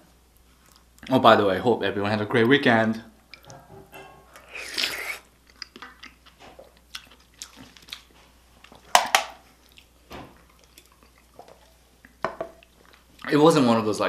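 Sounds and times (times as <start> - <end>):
chewing with wet clicks: 0.4 - 1.1, 3.2 - 3.6, 4.4 - 13.4
slurping soup: 4.3 - 6.8.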